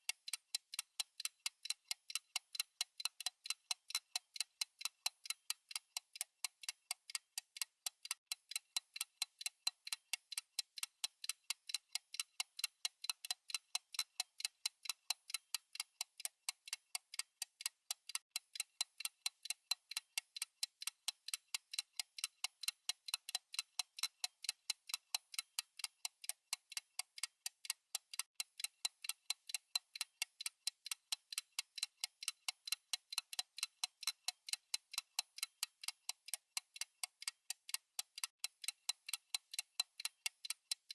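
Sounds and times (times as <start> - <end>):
fast clock ticking: 0.0 - 40.9.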